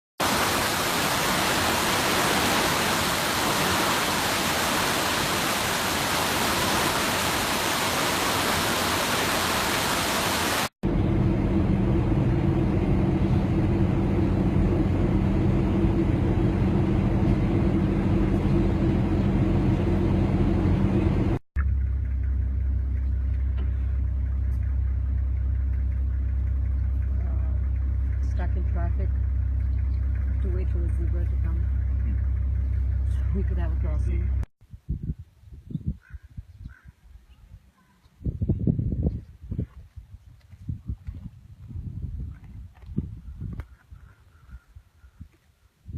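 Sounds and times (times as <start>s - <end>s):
rushing hiss: 0.2s - 10.7s
vehicle engine idling: 10.8s - 34.5s.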